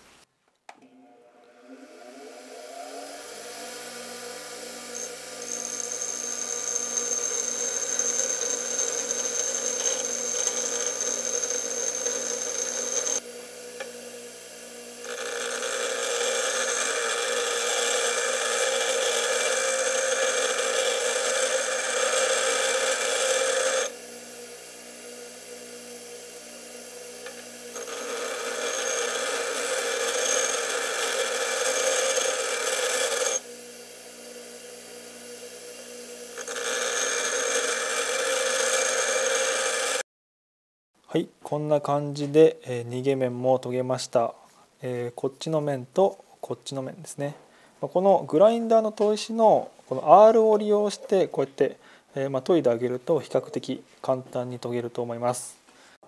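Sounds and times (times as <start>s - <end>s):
bench grinder grinding metal: 1.2s - 40.0s
grinder wheel spinning free: 1.5s - 13.2s, 15.0s - 24.0s, 25.7s - 40.0s.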